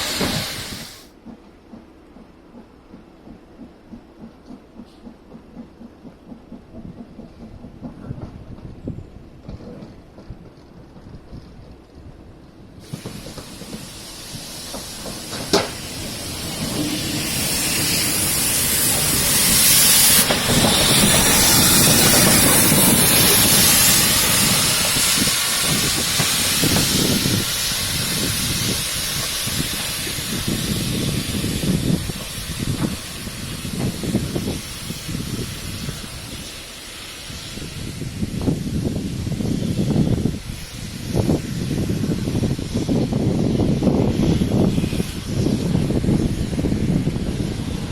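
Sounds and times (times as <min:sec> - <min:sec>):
steam locomotive hissing: 0:00.0 - 0:10.3, 0:12.7 - 0:47.9
low steam puffs: 0:00.0 - 0:47.9.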